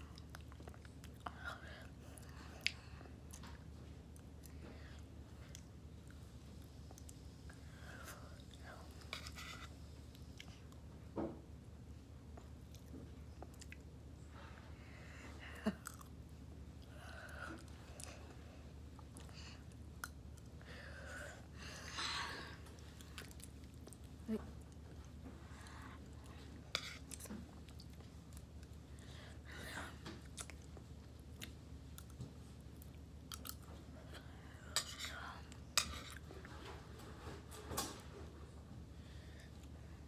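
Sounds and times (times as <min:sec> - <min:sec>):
person chewing: 0:32.8 - 0:33.7.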